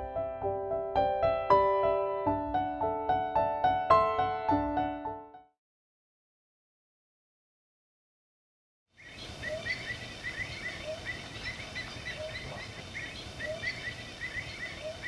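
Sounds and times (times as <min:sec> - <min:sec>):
birds chirping: 0:09.0 - 0:15.0.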